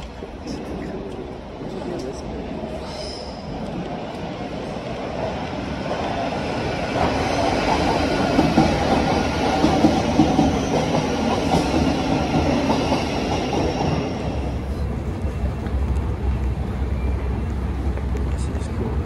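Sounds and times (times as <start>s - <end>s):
electric train running: 4.7s - 19.0s.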